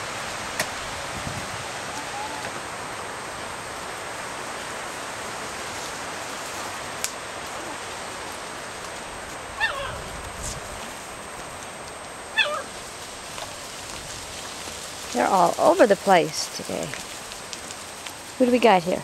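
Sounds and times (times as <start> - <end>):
steady background hiss: 0.0 - 19.0
puppy yelping: 1.9 - 2.6, 9.6 - 10.1, 12.3 - 12.7.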